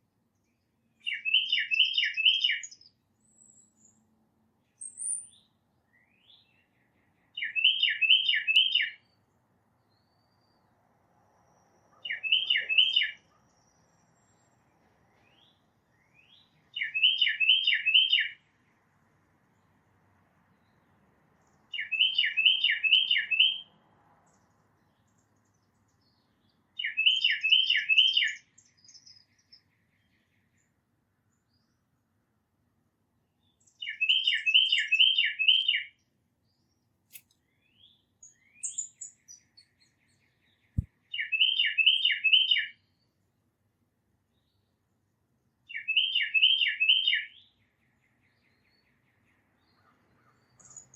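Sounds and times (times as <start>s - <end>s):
songbird whistling: 1.0s - 3.9s, 4.8s - 6.5s, 7.4s - 9.0s, 12.0s - 13.3s, 15.3s - 18.4s, 21.8s - 23.6s, 26.8s - 29.0s, 33.8s - 35.9s, 37.1s - 39.4s, 40.8s - 42.8s, 45.7s - 47.4s.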